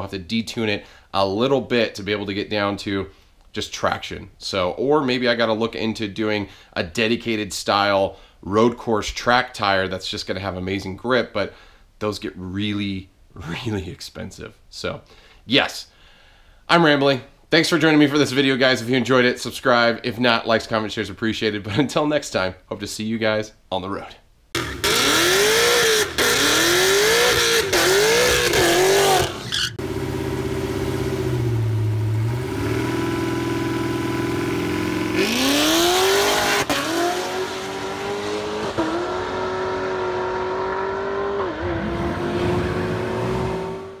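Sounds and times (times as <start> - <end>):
car accelerating with gear shifts: 24.6 - 44.0
car engine revving: 24.6 - 44.0.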